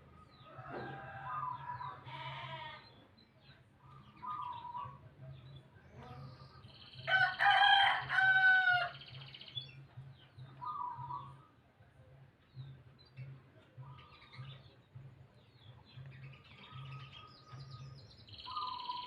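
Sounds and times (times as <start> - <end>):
rooster crowing: 0.5 - 2.0, 7.1 - 9.0.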